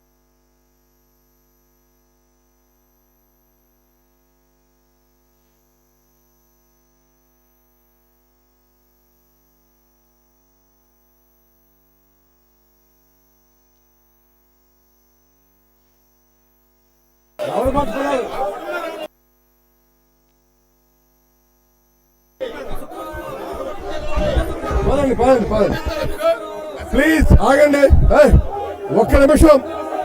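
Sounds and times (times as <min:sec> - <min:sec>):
thin high whine: 0:21.9 - 0:30.0.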